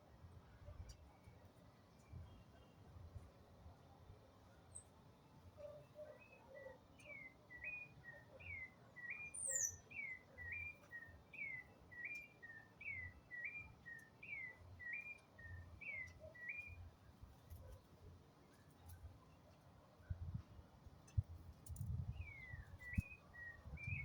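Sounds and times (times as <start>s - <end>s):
songbird singing: 5.9s - 16.9s, 21.9s - 24.0s.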